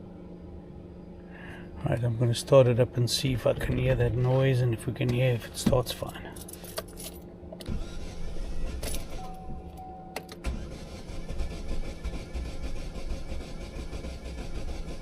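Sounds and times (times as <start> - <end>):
car starter motor cranking: 6.5 - 15.0.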